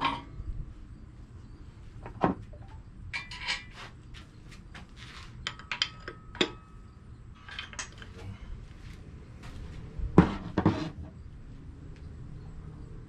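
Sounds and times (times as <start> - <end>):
metal tools clinking and clanking: 3.1 - 3.8, 5.4 - 6.8, 7.4 - 8.2.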